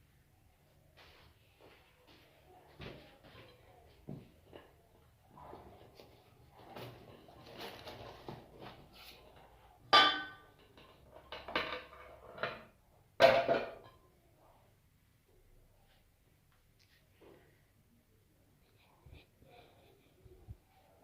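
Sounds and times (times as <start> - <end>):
rustling: 3.2 - 9.6
metal kitchenware clanking: 9.9 - 14.0.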